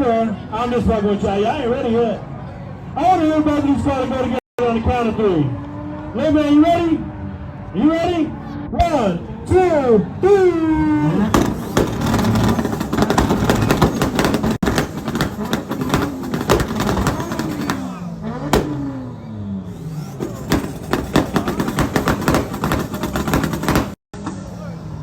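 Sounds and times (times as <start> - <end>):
car engines revving: 1.8 - 25.0
exhaust crackle and pops: 11.2 - 19.1, 19.7 - 24.0.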